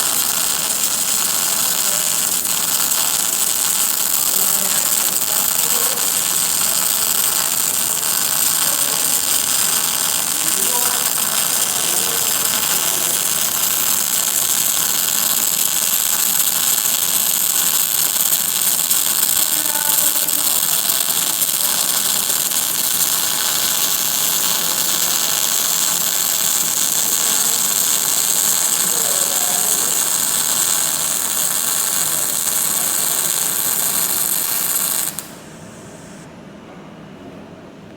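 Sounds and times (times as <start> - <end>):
welding arc crackling and hissing: 0.0 - 36.3.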